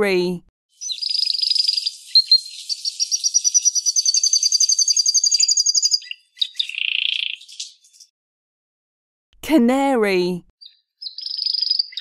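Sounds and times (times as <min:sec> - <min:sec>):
canary singing: 0:00.7 - 0:08.1, 0:10.6 - 0:12.0.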